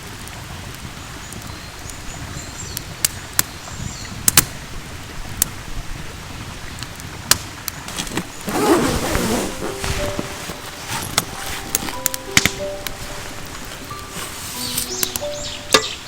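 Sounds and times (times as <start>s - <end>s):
campfire crackling: 0.0s - 16.0s
noisy rustle: 4.6s - 15.7s.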